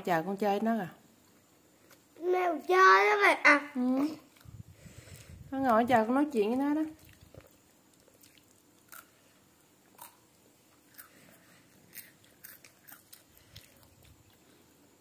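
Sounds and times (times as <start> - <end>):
child chewing crunchy snacks: 7.0 - 14.9.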